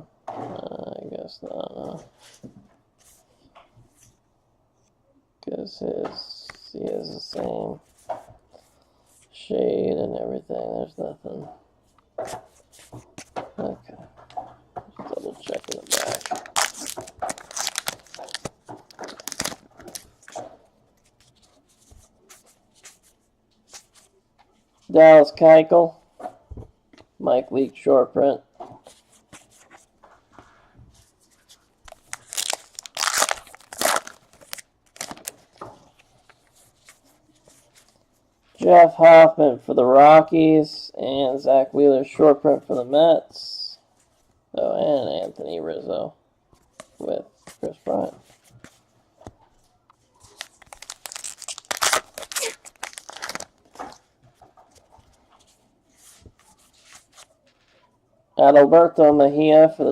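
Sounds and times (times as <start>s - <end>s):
card pack wrapper tearing and crinkling: 15.2s - 20.4s, 31.9s - 35.4s, 50.2s - 53.8s.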